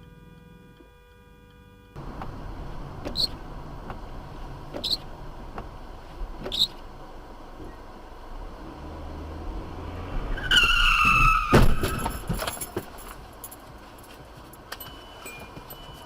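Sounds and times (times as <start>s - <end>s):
tyres screeching: 2.0s - 13.1s
loud car impact: 9.5s - 13.2s.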